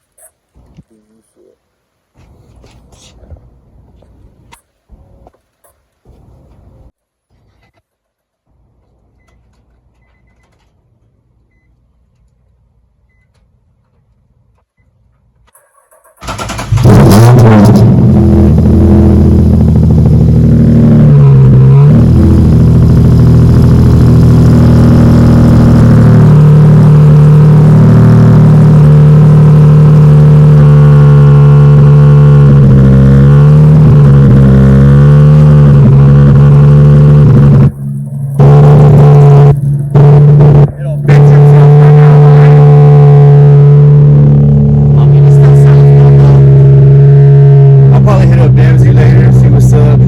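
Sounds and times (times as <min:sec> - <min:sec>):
car engine fast idle: 0:16.2 - 0:17.0.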